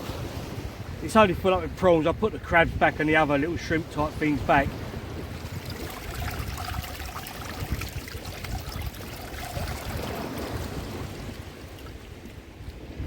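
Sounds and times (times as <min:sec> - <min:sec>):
wind rumble on microphone: 0:00.0 - 0:13.0
seawater sloshing in a bucket: 0:03.9 - 0:12.8
small ticks and splashes: 0:05.4 - 0:12.8.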